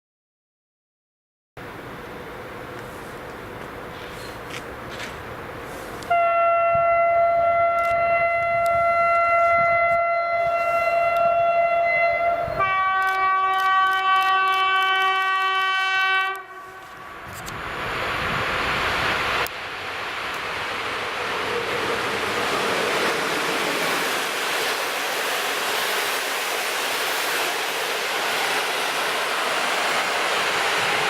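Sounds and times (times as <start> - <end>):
rushing noise of passing train: 1.6 - 31.0
locomotive horn: 6.0 - 17.3.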